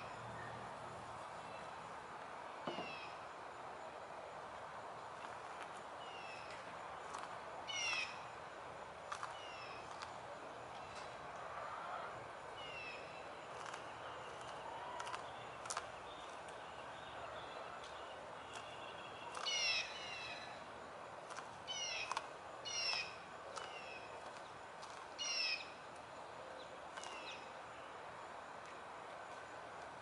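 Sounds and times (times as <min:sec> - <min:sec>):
steady outdoor hiss: 0:00.0 - 0:30.0
wild birds calling: 0:07.7 - 0:08.3, 0:18.5 - 0:20.6, 0:21.6 - 0:24.1, 0:25.2 - 0:25.8.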